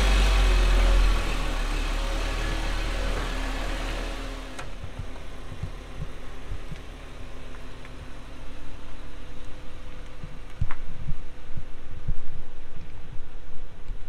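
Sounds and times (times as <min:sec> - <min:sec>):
car engine running: 0:00.0 - 0:13.5
short low thumps: 0:04.7 - 0:08.4.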